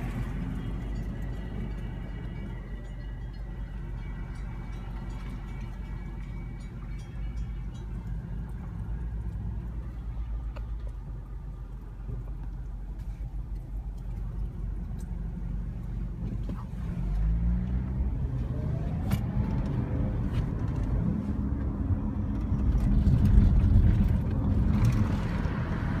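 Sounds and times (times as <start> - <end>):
electric train whine: 0.0 - 8.7
train rumble: 0.0 - 26.0.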